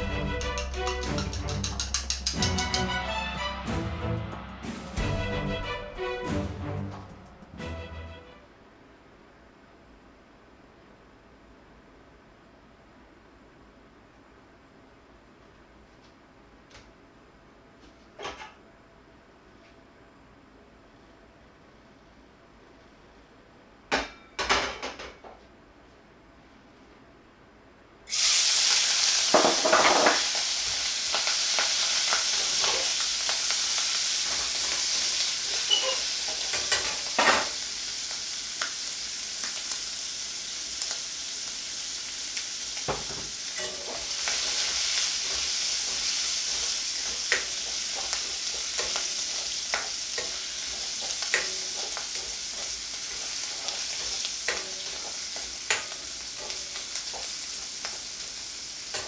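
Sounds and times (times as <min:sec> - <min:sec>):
shrimp sizzling in a wok: 0:28.1 - 0:59.0.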